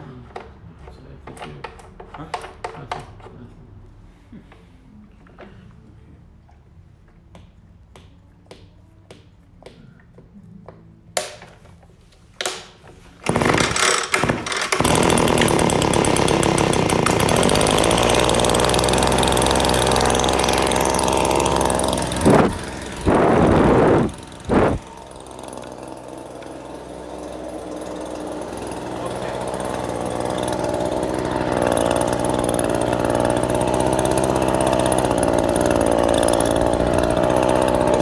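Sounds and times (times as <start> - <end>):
leaf blower engine: 13.2 - 38.0.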